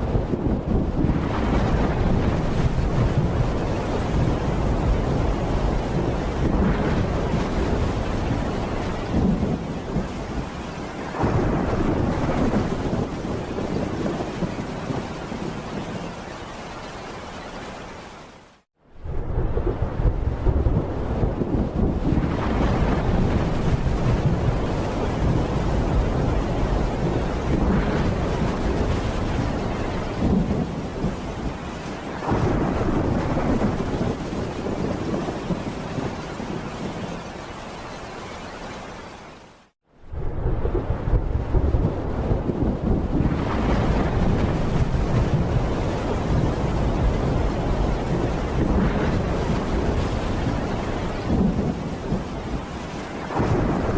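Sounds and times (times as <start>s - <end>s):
rolling thunder: 0.0s - 16.2s, 18.9s - 37.3s, 40.0s - 53.9s
steady rain: 0.0s - 53.9s.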